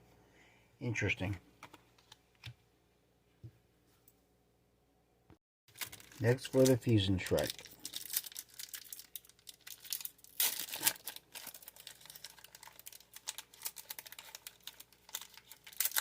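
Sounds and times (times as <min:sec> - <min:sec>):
foil wrapper crinkling and tearing: 0:05.7 - 0:16.0.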